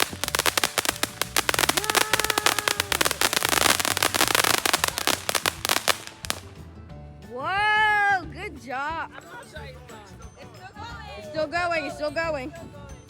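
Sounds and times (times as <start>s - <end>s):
fireworks crackling pops: 0.0s - 6.6s.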